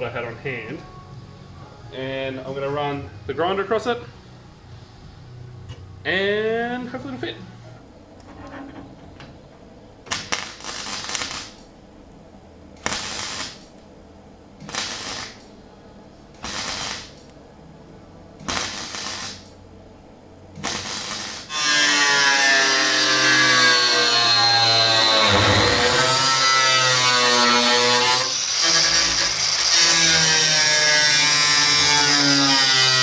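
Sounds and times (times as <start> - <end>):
grinder whine: 20.6 - 32.8
angle grinder on sheet steel: 20.8 - 33.0.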